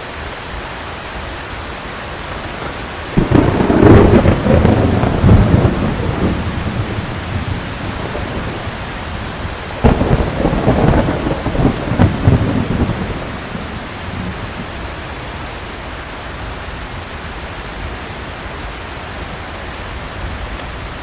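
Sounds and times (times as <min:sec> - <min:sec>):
heavy rain: 0:00.0 - 0:21.0
thunder rumbling: 0:01.6 - 0:17.1.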